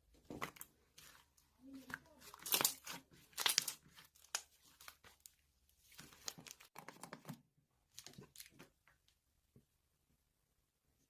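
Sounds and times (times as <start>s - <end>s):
crinkling and rustling: 0.0s - 9.2s.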